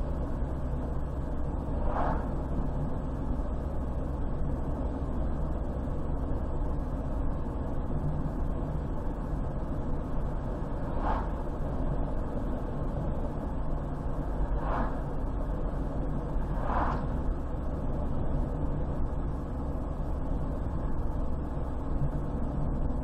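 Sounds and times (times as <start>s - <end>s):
car road noise rumble: 0.0s - 23.0s
short swishes: 1.8s - 2.4s, 10.8s - 11.5s, 14.6s - 15.1s, 16.6s - 17.1s.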